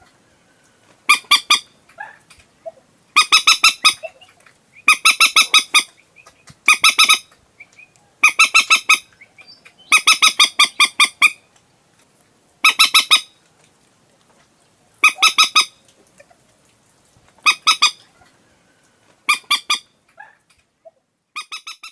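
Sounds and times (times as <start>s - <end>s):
moorhen calling: 1.0s - 11.5s, 12.6s - 13.4s, 15.0s - 16.4s, 17.4s - 18.2s.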